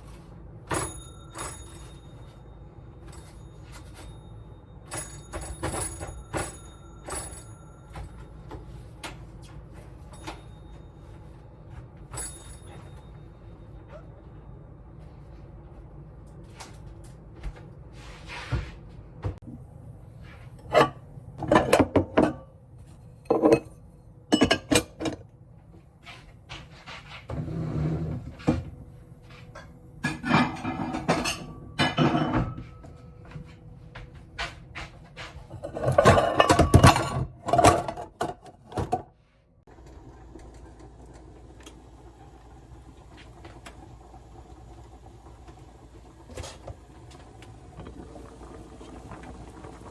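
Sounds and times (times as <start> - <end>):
dishes and cutlery clinking: 20.6 - 22.6, 23.2 - 25.2, 29.6 - 33.0, 34.4 - 39.0.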